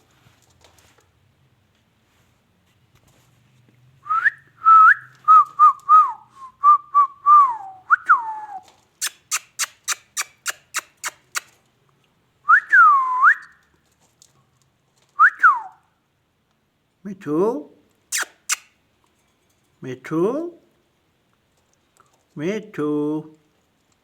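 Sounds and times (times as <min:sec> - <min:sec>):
parrot whistling: 0:18.1 - 0:18.7.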